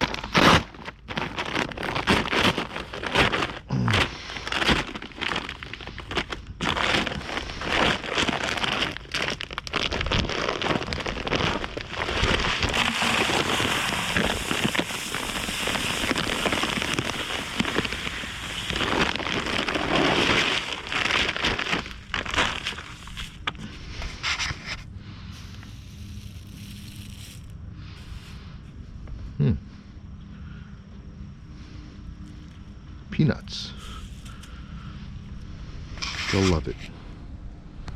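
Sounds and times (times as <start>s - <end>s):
bird seed pouring: 7.2s - 23.6s, 25.3s - 28.4s.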